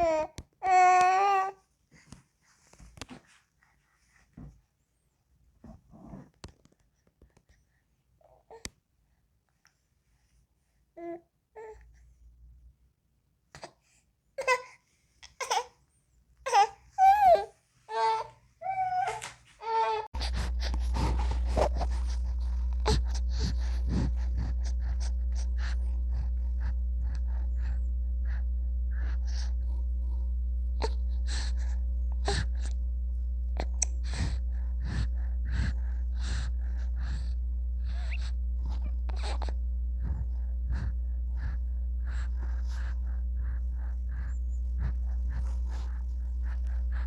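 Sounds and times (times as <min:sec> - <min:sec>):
steady low hum: 0:19.2 - 0:47.0.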